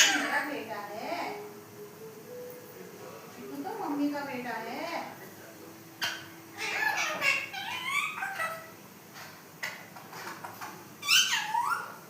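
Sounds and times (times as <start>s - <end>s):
parrot whistled calls: 6.0s - 8.7s, 11.0s - 12.0s.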